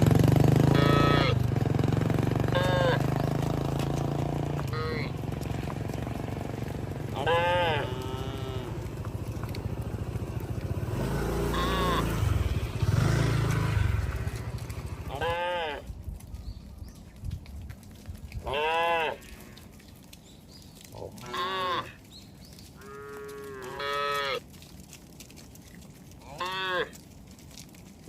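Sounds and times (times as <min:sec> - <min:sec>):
low steady rumble: 0:00.0 - 0:28.0
cattle mooing: 0:00.6 - 0:01.5, 0:02.5 - 0:06.4, 0:07.0 - 0:09.1, 0:10.8 - 0:12.5, 0:15.0 - 0:15.9, 0:18.5 - 0:19.4, 0:21.0 - 0:22.0, 0:22.8 - 0:24.4, 0:26.2 - 0:27.0.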